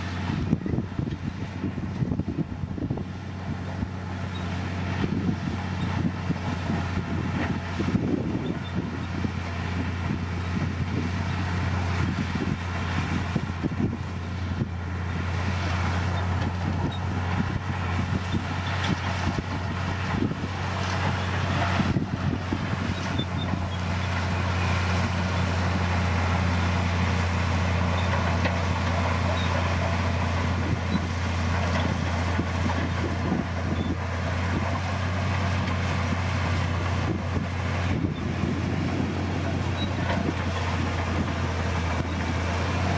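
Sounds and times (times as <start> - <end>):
bulldozer diesel engine droning: 0.0 - 42.9.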